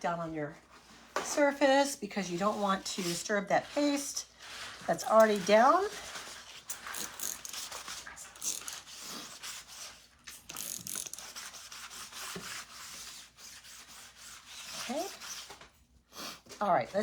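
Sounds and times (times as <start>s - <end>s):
plastic rubbing and scraping: 2.5s - 9.0s.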